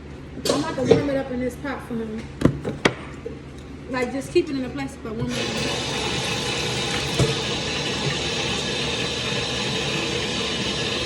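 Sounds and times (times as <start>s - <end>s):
tap water running into pot: 5.3s - 11.0s.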